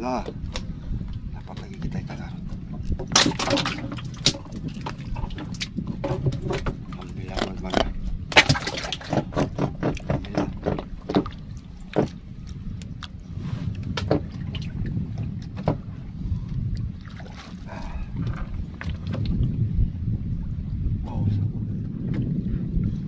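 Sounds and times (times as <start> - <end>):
water slapping canoe: 0.0 - 23.0
wind buffeting microphone: 0.0 - 23.0
knocks on wooden hull: 3.0 - 7.0, 8.3 - 12.2, 13.9 - 14.4, 15.6 - 15.8.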